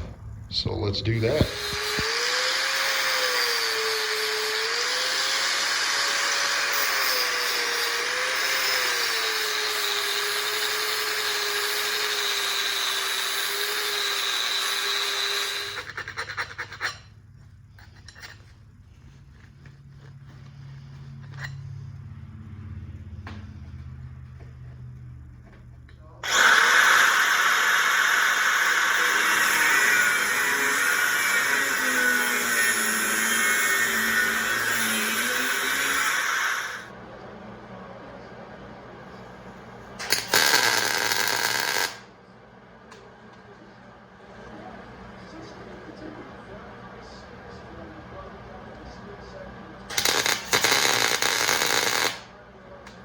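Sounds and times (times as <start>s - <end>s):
angle grinder grinding steel: 1.2s - 17.1s, 26.2s - 36.9s, 40.0s - 42.0s, 49.9s - 52.2s.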